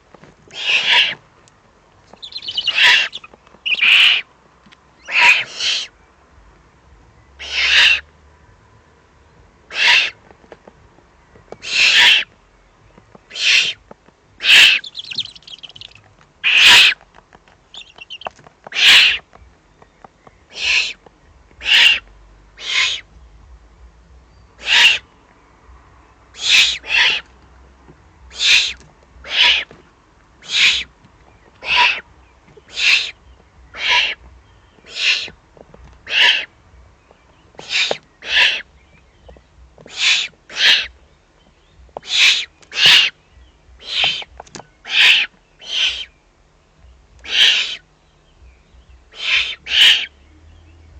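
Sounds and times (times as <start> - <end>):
owl chicks hissing rasps: 0.5 - 1.2, 2.2 - 4.3, 5.0 - 6.0, 7.4 - 8.1, 9.7 - 10.2, 11.6 - 12.3, 13.3 - 13.8, 14.4 - 17.0, 17.7 - 19.3, 20.5 - 21.0, 21.6 - 22.0, 22.6 - 23.1, 24.6 - 25.1, 26.3 - 27.3, 28.3 - 29.7, 30.4 - 35.4, 36.0 - 36.5, 37.6 - 38.7, 39.8 - 41.0, 42.0 - 43.2, 43.8 - 46.2, 47.2 - 47.9, 49.1 - 50.2.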